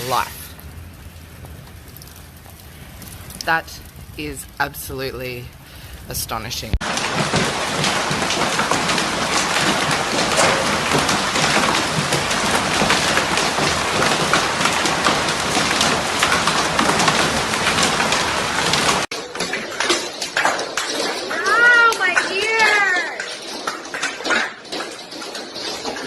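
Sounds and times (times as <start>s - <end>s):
hail clattering on hard surfaces: 6.4s - 26.0s
scattered knocks: 6.8s - 26.0s.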